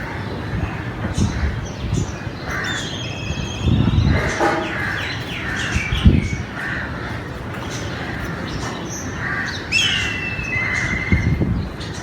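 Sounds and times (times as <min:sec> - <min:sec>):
harsh crow-like caws: 0:02.5 - 0:03.0, 0:04.6 - 0:07.4, 0:09.1 - 0:11.2.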